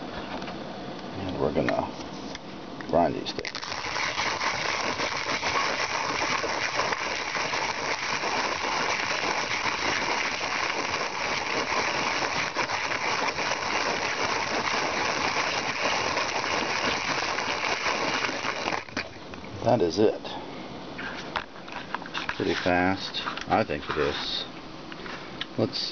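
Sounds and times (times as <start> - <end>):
hand mill grinding coffee beans: 3.4 - 19.1.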